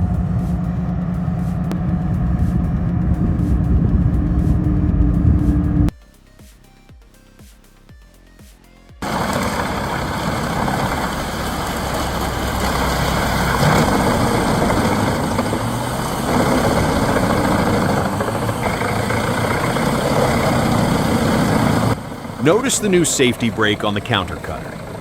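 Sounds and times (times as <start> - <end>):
forestry mulcher running: 9.0 - 25.0.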